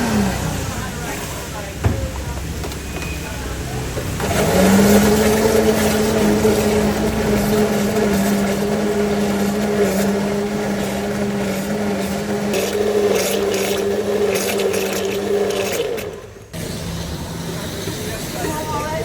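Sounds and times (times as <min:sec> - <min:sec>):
electric blender motor humming: 0:04.0 - 0:19.0.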